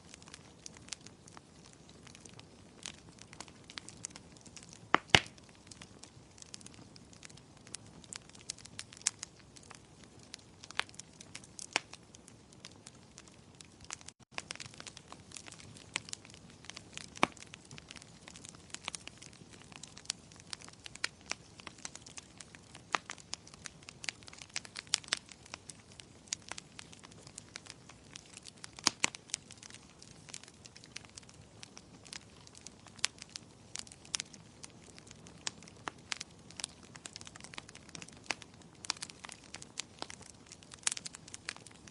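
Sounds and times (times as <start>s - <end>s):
fireplace fire crackling: 0.0s - 41.9s.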